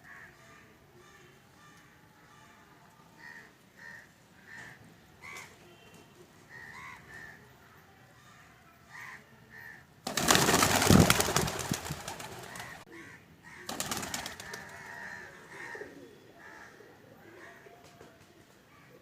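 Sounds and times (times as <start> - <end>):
loud rustling bursts: 10.1 - 12.8
pigeons cooing: 10.1 - 18.1.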